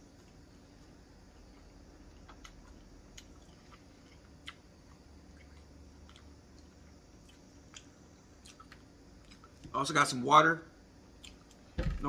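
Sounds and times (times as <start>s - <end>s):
low room hum: 0.0s - 12.0s
chewing mouth clicks and smacks: 2.2s - 9.6s, 11.2s - 11.6s.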